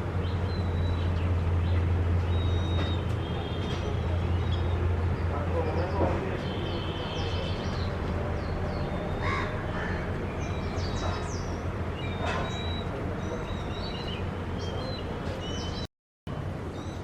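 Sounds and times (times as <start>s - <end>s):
high bird chirps: 0.2s - 3.1s, 10.3s - 15.9s.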